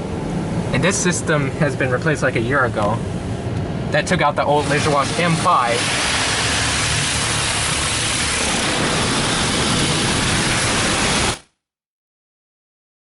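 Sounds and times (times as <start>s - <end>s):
water spray drumming on car: 4.6s - 11.4s.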